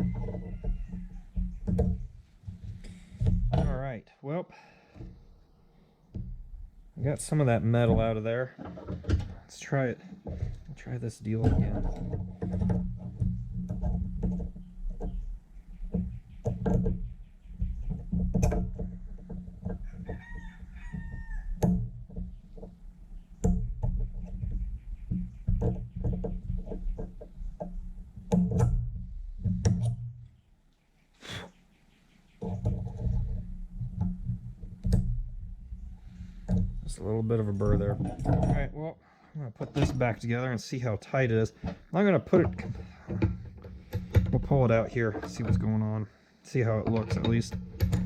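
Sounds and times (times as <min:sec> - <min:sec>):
rooster crowing: 0:00.0 - 0:01.4, 0:19.8 - 0:21.6
metallic clicks and knocks: 0:00.0 - 0:03.9, 0:06.1 - 0:30.4, 0:32.3 - 0:38.8, 0:39.6 - 0:48.0.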